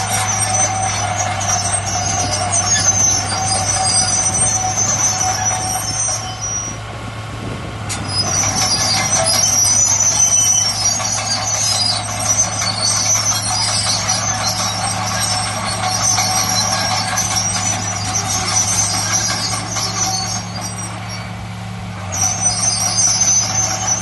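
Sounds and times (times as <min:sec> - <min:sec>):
high-pitched metallic squealing: 0:00.0 - 0:06.9, 0:07.9 - 0:24.0
diesel machinery droning: 0:00.0 - 0:24.0.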